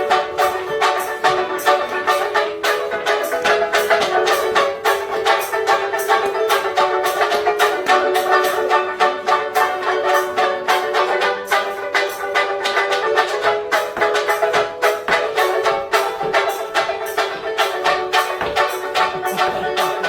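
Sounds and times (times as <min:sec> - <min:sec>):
ukulele strumming: 0:00.0 - 0:20.0.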